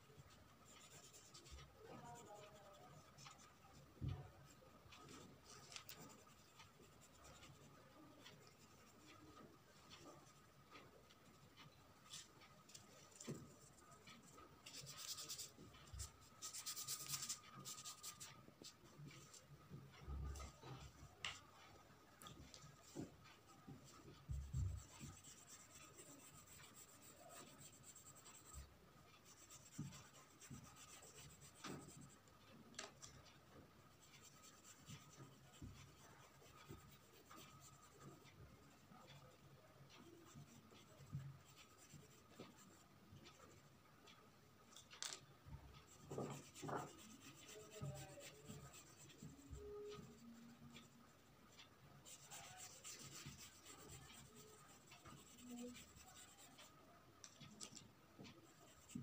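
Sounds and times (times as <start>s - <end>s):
drawing tool scratching paper: 0.1s - 3.8s, 4.9s - 10.5s, 11.6s - 19.4s, 23.8s - 32.3s, 34.0s - 39.3s, 39.9s - 43.7s, 45.8s - 56.7s, 58.2s - 59.0s.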